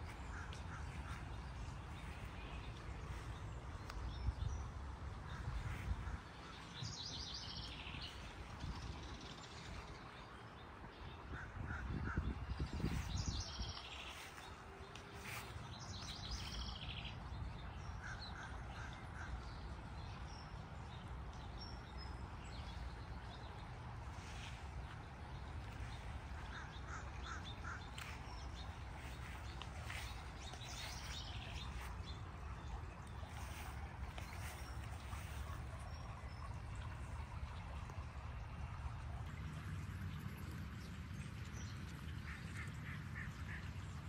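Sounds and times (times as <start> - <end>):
steady low rumble: 11.3 - 41.3
birds calling: 24.2 - 32.3.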